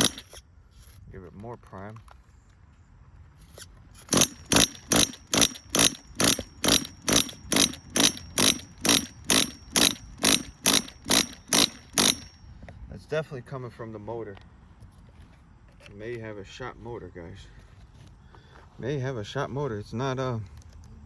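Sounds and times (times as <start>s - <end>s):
rc car engine knocking and whining: 0.0s - 0.9s, 3.5s - 12.4s.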